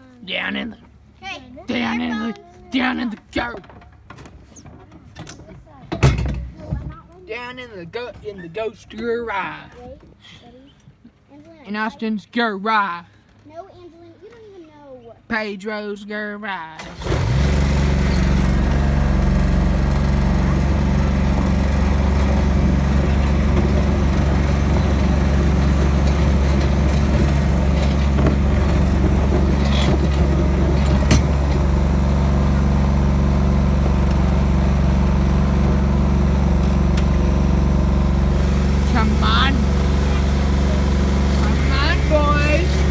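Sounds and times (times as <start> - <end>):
tractor engine running: 16.8 - 42.9.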